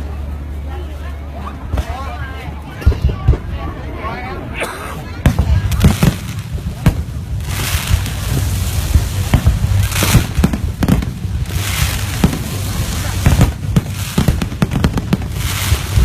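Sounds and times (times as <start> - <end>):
low rumble: 0.0 - 16.0
firework hiss: 5.3 - 16.0.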